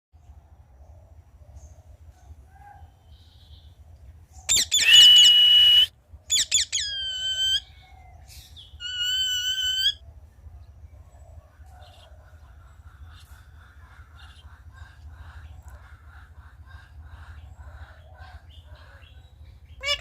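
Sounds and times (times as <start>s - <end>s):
parakeet calling loudly: 4.5s - 7.7s, 8.8s - 10.0s, 19.8s - 20.0s.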